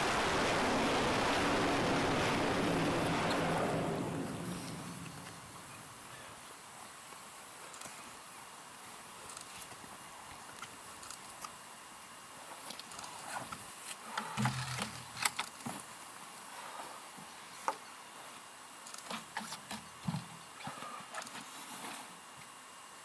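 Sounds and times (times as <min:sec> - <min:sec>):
steady hiss: 0:00.0 - 0:15.2.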